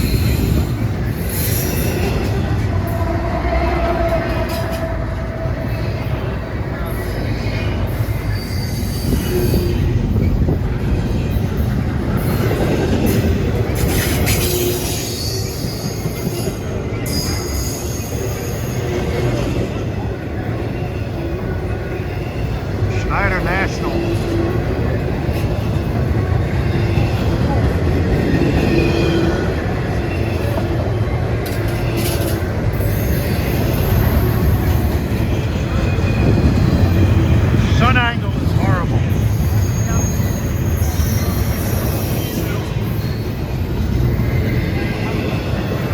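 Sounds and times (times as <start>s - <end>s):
train wheels rumbling on rail: 0.0s - 45.9s
high wheel squeals: 6.8s - 10.4s, 12.2s - 20.0s, 38.6s - 45.9s.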